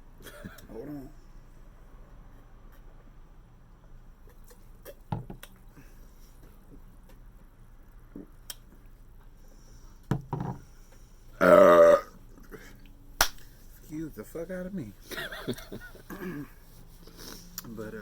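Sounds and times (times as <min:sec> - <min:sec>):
person burping: 0:11.4 - 0:12.2, 0:16.1 - 0:16.5.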